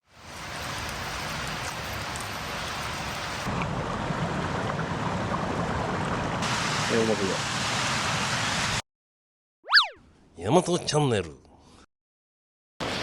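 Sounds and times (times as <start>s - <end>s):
hiss of running water: 0.0s - 3.5s, 6.4s - 8.8s.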